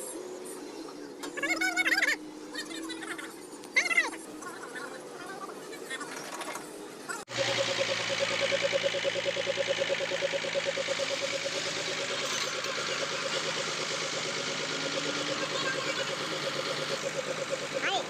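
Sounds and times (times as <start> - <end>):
diesel engine idling: 7.3 - 18.0.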